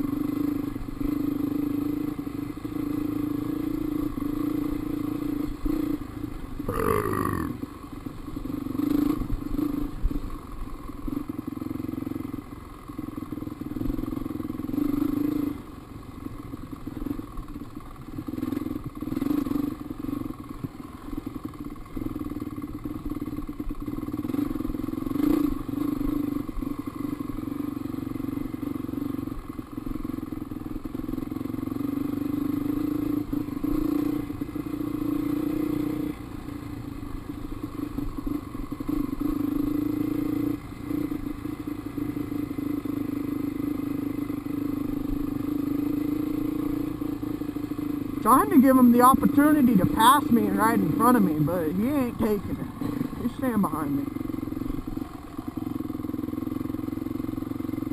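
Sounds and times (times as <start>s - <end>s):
dirt bike engine revving: 6.6s - 7.7s, 45.9s - 54.3s.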